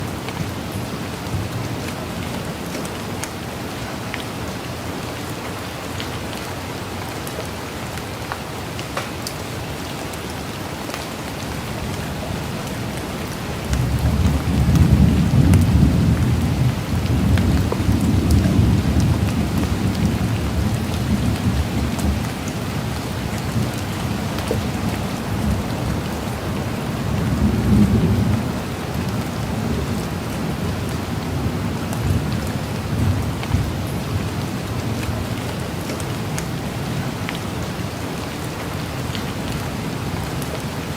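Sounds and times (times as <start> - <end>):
steady rain falling: 0.0 - 40.9
low rumble of thunder: 13.5 - 34.5.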